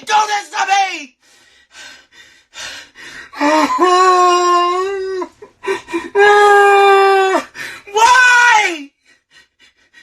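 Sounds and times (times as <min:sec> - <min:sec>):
sobbing breaths: 0:01.3 - 0:07.9
man wailing: 0:03.4 - 0:05.4, 0:06.2 - 0:08.9.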